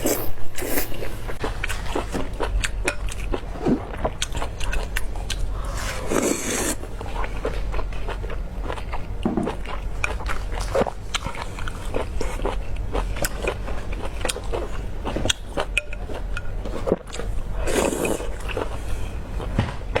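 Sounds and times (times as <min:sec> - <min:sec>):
person biting and chewing food: 0:00.0 - 0:06.8.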